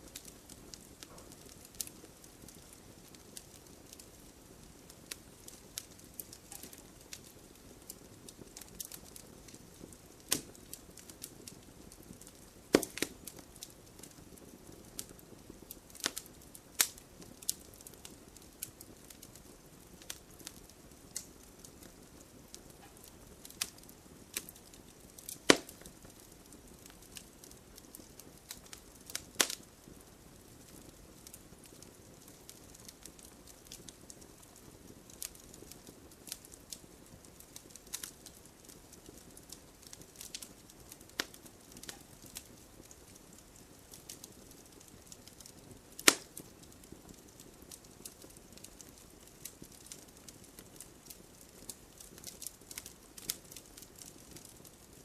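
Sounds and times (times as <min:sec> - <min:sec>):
campfire crackling: 0:00.0 - 0:55.0
loud sharp fire pops: 0:10.2 - 0:11.6, 0:12.3 - 0:15.2, 0:22.8 - 0:26.2, 0:45.9 - 0:46.6.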